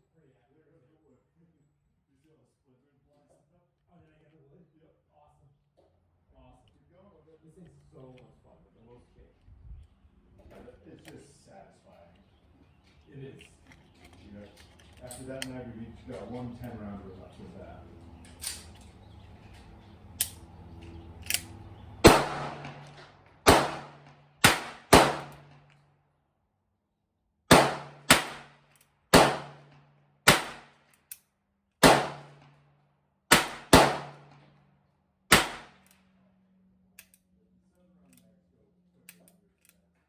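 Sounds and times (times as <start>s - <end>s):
gunshots with echo: 22.0s - 25.6s, 27.5s - 29.7s, 30.3s - 30.7s, 31.8s - 32.4s, 33.3s - 34.4s, 35.3s - 35.8s.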